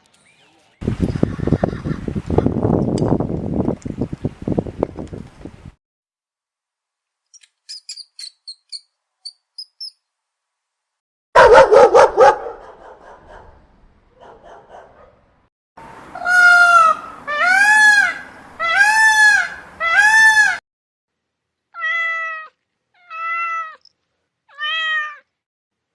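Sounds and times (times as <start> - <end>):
cat meowing: 21.8 - 23.8, 24.5 - 25.3.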